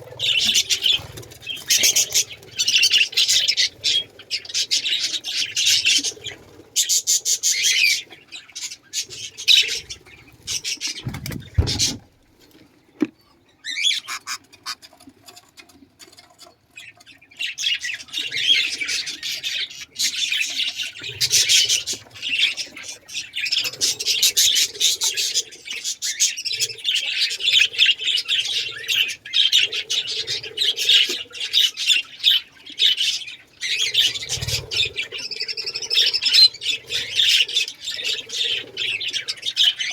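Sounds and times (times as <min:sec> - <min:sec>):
caged birds chattering and chirping: 0:00.0 - 0:39.9
low thud: 0:11.0 - 0:12.0.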